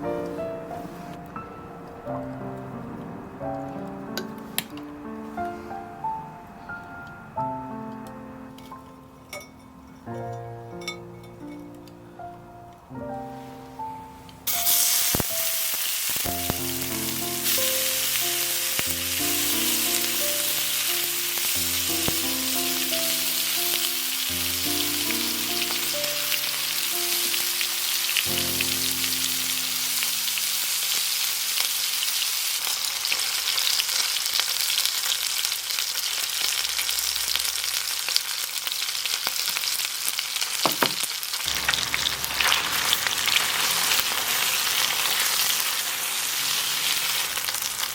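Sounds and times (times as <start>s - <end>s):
light background music: 0.0s - 31.2s
food sizzling in hot fat: 14.4s - 47.9s.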